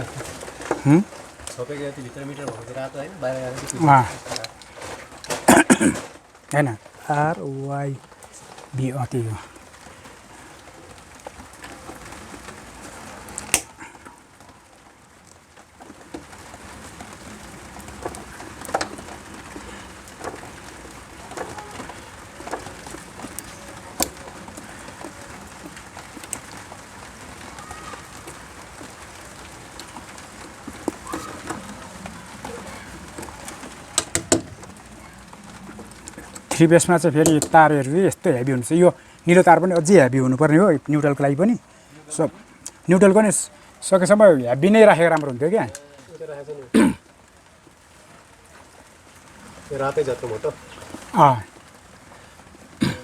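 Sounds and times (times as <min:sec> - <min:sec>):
steady background hiss: 0:00.0 - 0:53.0
sharp clicks and taps: 0:34.0 - 0:34.6, 0:37.2 - 0:37.6.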